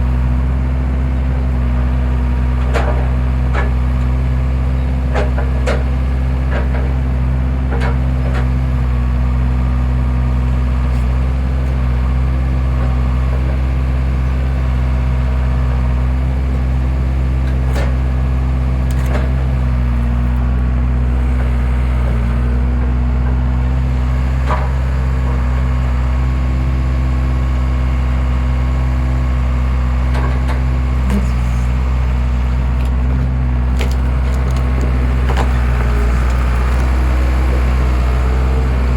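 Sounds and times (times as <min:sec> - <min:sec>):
engine droning: 0:00.0 - 0:38.9
wood cracking and knocking: 0:33.7 - 0:37.7.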